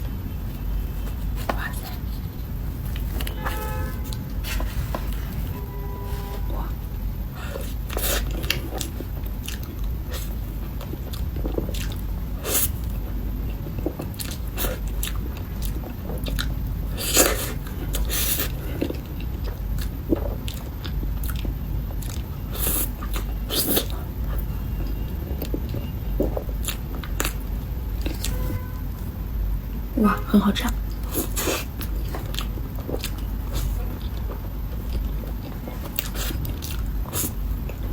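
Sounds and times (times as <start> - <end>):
low hum: 0.0 - 17.0
chewing soft cake: 7.4 - 28.5, 30.7 - 37.9.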